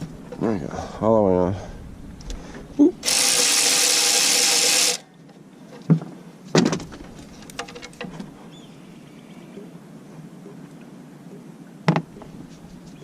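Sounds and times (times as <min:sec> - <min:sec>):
cordless power tool spinning: 0:03.0 - 0:05.1.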